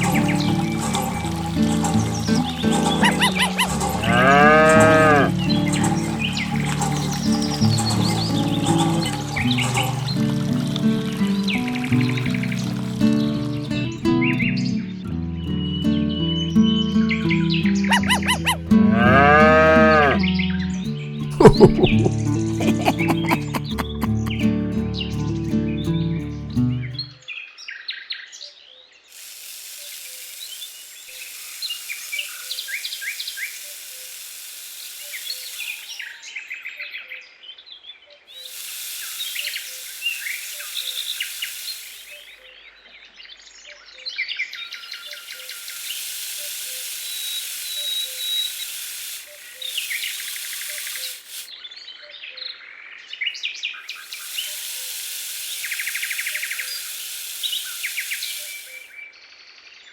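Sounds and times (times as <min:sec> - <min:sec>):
steady high hiss: 0:00.0 - 0:04.1, 0:04.7 - 0:14.2, 0:29.1 - 0:36.2, 0:38.4 - 0:42.5, 0:44.5 - 0:51.6, 0:53.6 - 0:59.1
small birds chirping: 0:00.0 - 0:18.8, 0:20.5 - 0:59.9.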